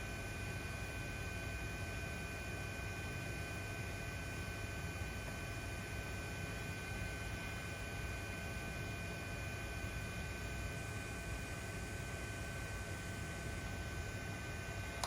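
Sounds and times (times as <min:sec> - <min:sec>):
electrical hum and hiss: 0:06.5 - 0:15.0.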